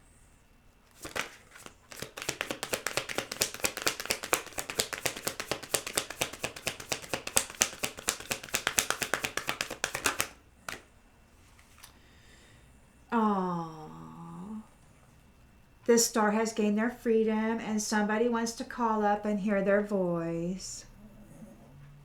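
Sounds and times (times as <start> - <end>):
card deck snap: 0.9 - 10.9
cards being shuffled: 0.9 - 10.9.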